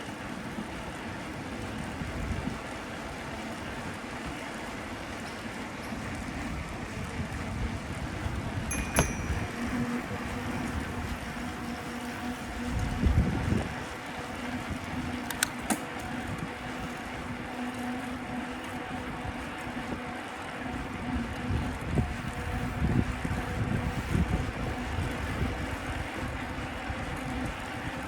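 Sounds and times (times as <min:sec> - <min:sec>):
wind buffeting microphone: 0:12.4 - 0:15.2, 0:21.0 - 0:28.0.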